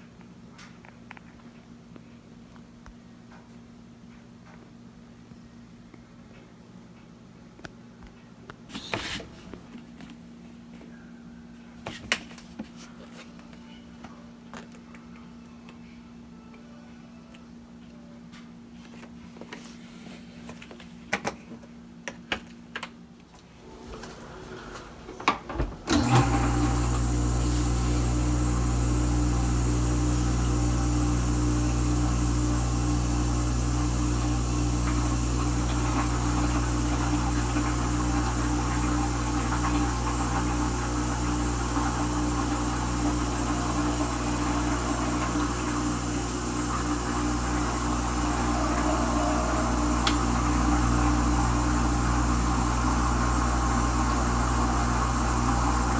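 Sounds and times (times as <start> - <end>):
dishwasher pump motor humming: 23.5 - 55.9
water noise: 33.8 - 55.9.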